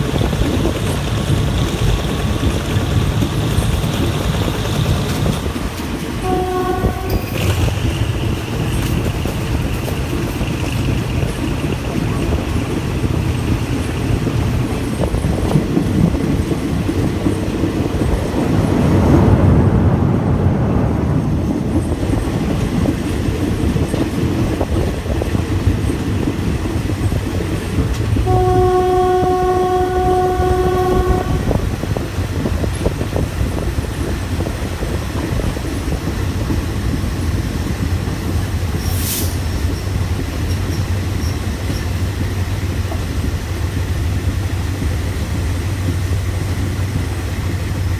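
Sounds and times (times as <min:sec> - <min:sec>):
train wheels rumbling on rails: 0:00.0 - 0:47.9
locomotive horn: 0:06.2 - 0:07.8, 0:28.2 - 0:32.0.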